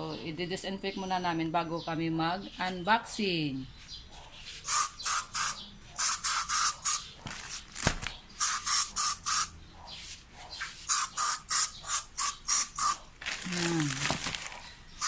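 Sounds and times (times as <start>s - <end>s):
spray bottle hissing spritzes: 4.6s - 7.0s, 8.4s - 9.5s, 10.9s - 13.0s.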